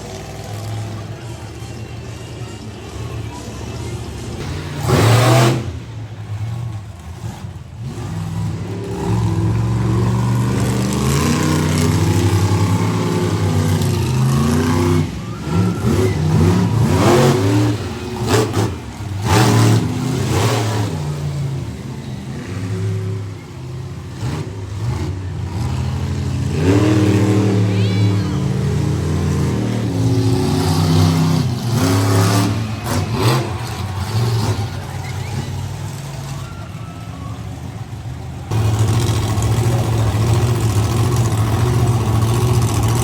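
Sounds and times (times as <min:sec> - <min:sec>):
monster truck engine revving: 0:00.0 - 0:43.0
loud engine bursts: 0:04.2 - 0:43.0.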